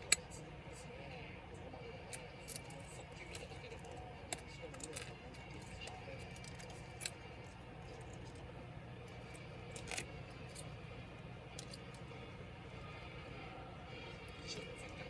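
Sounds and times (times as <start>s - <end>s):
low steady hum: 0.0s - 15.0s
laptop parts clicking: 2.1s - 13.0s.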